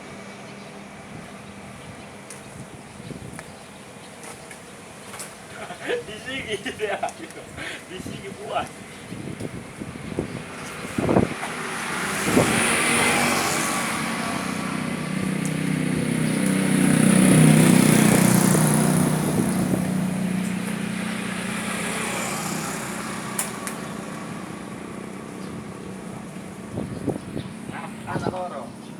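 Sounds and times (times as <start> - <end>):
vehicle passing by: 9.2 - 28.9.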